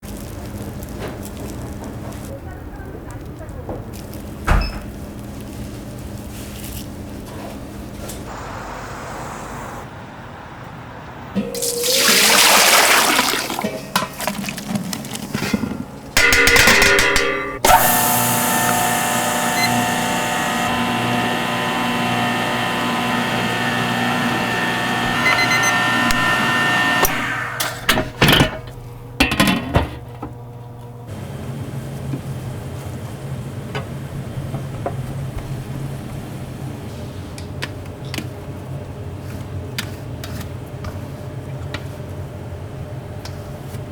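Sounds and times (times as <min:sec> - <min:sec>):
steady hum with tones: 0:08.2 - 0:11.9
liquid rushing: 0:11.4 - 0:15.3
clattering: 0:15.4 - 0:17.8.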